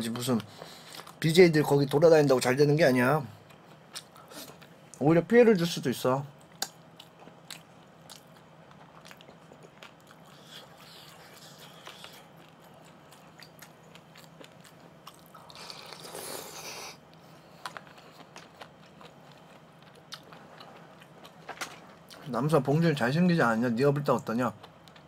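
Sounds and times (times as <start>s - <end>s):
person chewing food: 3.4s - 4.7s, 6.4s - 22.3s.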